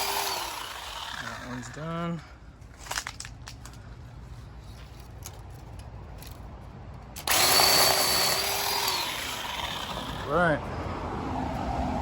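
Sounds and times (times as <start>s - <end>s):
cordless chainsaw motor whirring: 0.0s - 1.8s, 7.2s - 10.4s.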